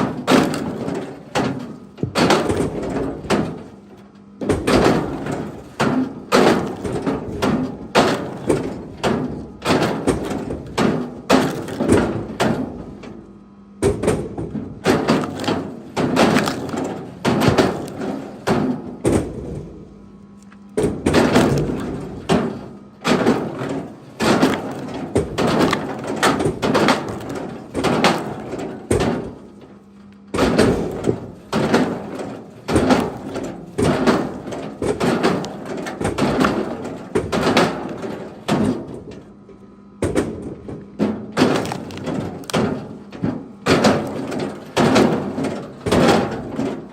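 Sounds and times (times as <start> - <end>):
wood being struck: 4.4 - 12.8, 13.8 - 19.8, 20.8 - 29.7, 30.3 - 38.9.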